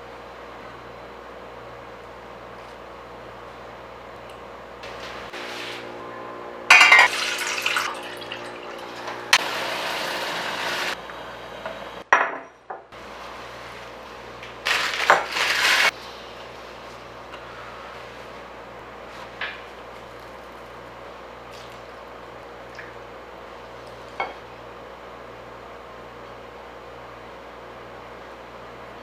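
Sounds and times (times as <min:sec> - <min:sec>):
glass and dishes clinking: 0:06.7 - 0:09.0
running water: 0:07.0 - 0:09.4.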